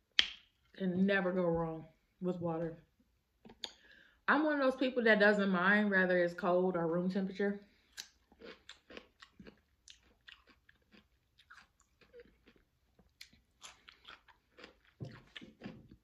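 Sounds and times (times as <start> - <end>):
person crunching cucumber: 7.9 - 16.0.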